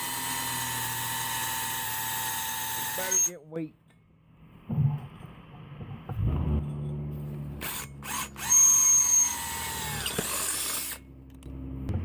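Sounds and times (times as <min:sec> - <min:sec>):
electric drill motor: 0:00.0 - 0:03.3, 0:07.6 - 0:11.0
drill bit screeching in metal: 0:00.0 - 0:03.4, 0:07.6 - 0:11.0.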